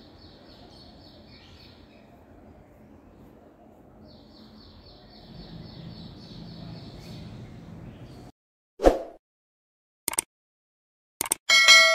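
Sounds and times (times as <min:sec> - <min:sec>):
bird chirping: 0:00.0 - 0:03.4, 0:04.0 - 0:08.3.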